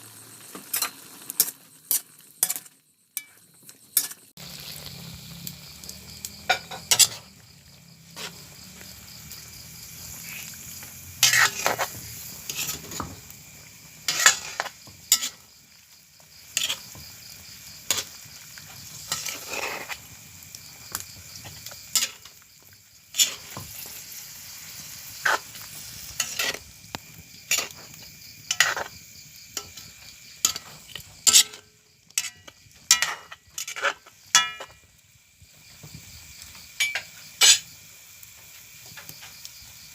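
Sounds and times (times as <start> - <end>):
food sizzling in a frying pan: 0.0 - 39.9
metal utensil scraping a pan: 0.6 - 4.3, 6.4 - 7.4, 8.1 - 9.1, 10.0 - 13.4, 14.0 - 15.5, 16.4 - 17.2, 17.8 - 22.4, 23.1 - 26.7, 27.4 - 34.8, 36.8 - 37.7.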